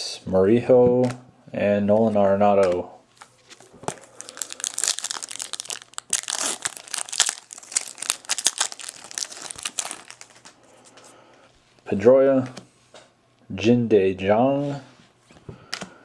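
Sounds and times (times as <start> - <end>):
foil wrapper crinkling: 3.2 - 10.6.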